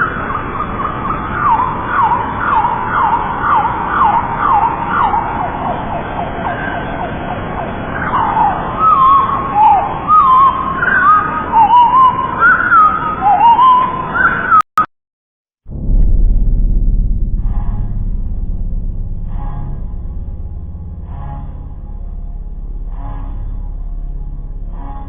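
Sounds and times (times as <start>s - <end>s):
warbling bird notes: 0.0s - 14.6s.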